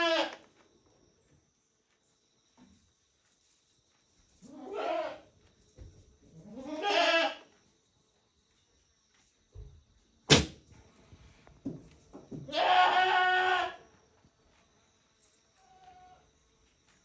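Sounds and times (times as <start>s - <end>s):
goat bleating: 0.0s - 0.4s, 4.5s - 5.2s, 6.4s - 7.5s, 12.5s - 13.8s.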